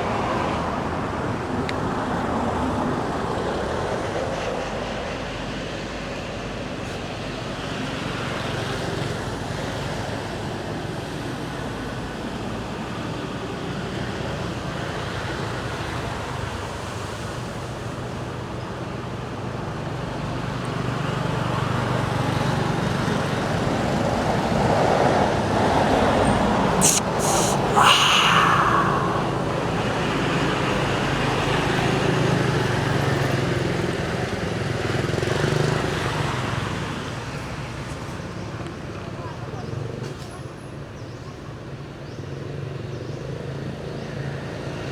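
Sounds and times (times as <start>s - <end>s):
road traffic hum: 23.1s - 34.3s.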